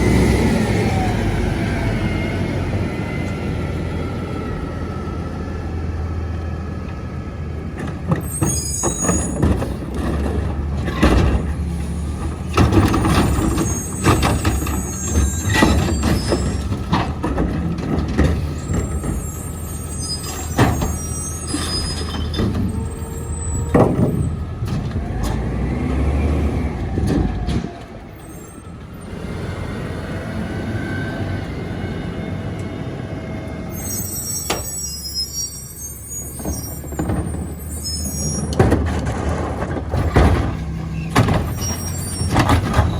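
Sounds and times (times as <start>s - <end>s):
truck engine under load: 0.0s - 42.9s
high squeals: 8.2s - 9.5s, 12.9s - 16.8s, 18.5s - 24.4s, 33.2s - 38.6s, 40.9s - 42.9s
air brakes hissing: 33.7s - 38.5s.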